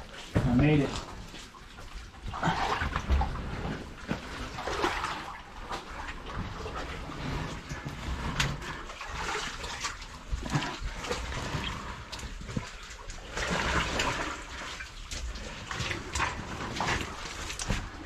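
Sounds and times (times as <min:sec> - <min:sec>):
water sloshing and splashing: 0:00.0 - 0:18.0.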